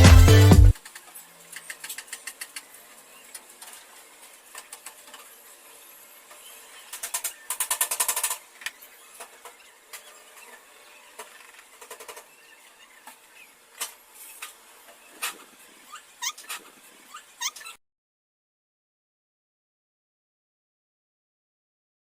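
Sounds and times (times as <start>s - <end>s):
small birds calling: 6.2s - 17.8s
clicking bird trill: 15.9s - 17.8s.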